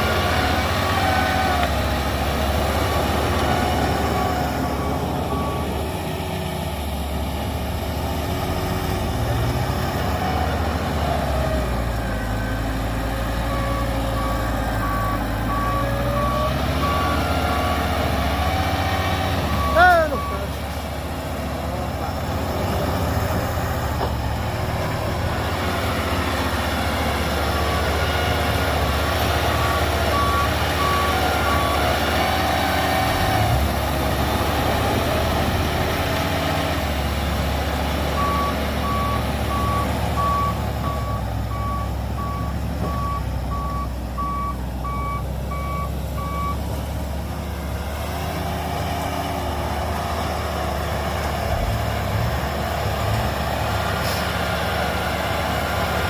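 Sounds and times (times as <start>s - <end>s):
diesel engine running: 0.0s - 56.0s
reversing alarm beeping: 3.3s - 6.2s, 13.3s - 18.4s, 19.4s - 20.5s, 29.6s - 32.0s, 38.2s - 46.6s.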